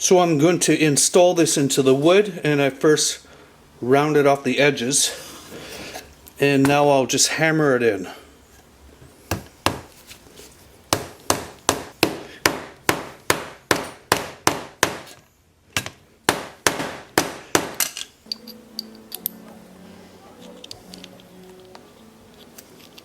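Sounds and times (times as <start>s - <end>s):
hammer striking wooden block: 10.9s - 15.2s, 16.3s - 19.4s.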